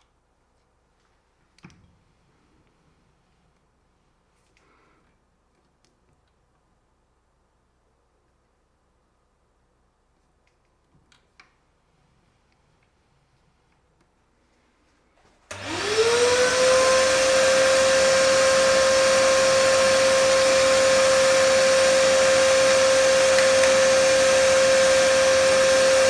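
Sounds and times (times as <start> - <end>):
electric motor whine: 15.5 - 26.0.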